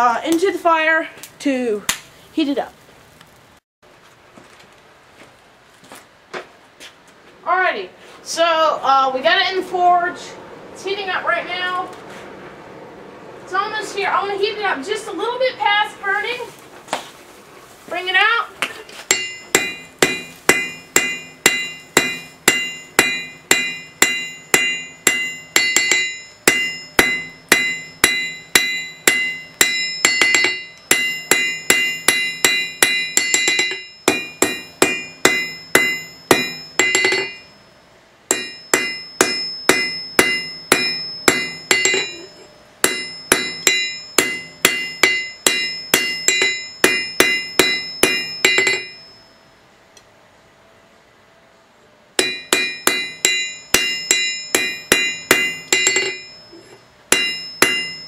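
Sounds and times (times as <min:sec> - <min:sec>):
hammer ringing on anvil: 0:19.1 - 0:49.4, 0:52.2 - 0:58.0.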